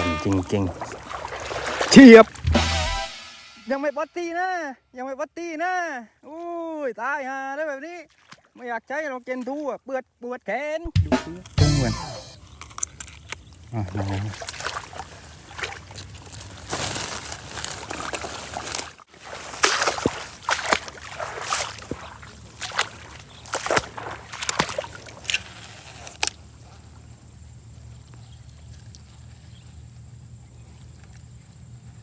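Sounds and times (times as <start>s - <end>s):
water splashing and sloshing: 0.0s - 3.5s, 7.9s - 9.8s, 12.4s - 32.0s.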